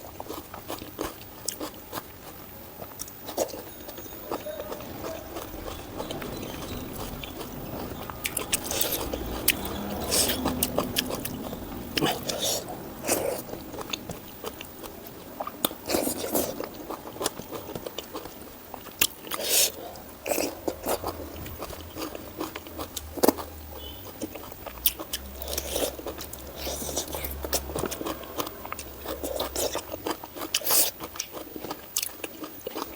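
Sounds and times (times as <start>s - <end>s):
chewing and biting food: 0.0s - 32.9s.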